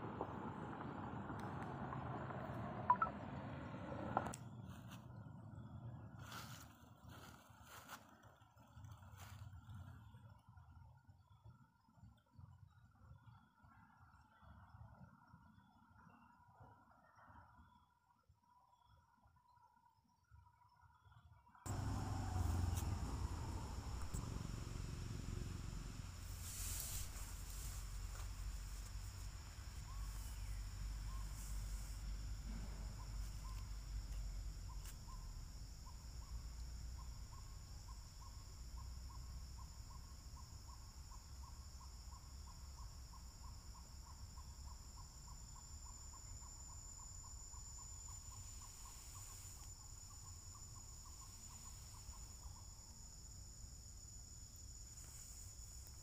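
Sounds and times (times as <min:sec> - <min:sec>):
insects droning: 0:21.7 - 0:56.0.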